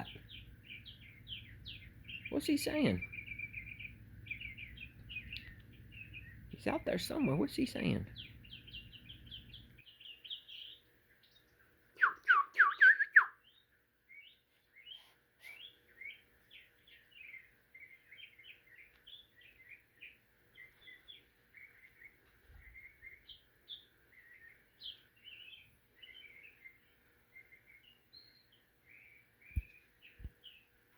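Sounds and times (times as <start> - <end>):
songbird chirping and warbling: 0.0 - 30.9.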